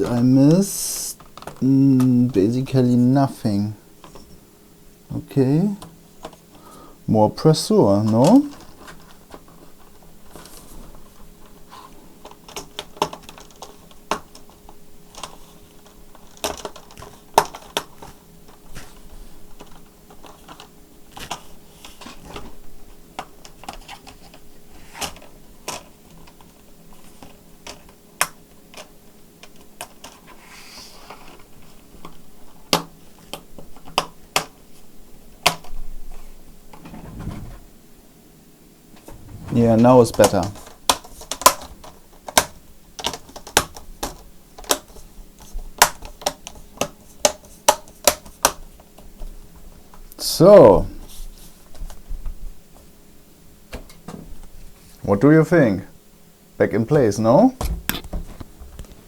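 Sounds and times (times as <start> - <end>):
faint steady hum: 0.0 - 59.0
plastic case parts clicking: 12.2 - 18.6, 27.2 - 30.3, 40.1 - 48.6.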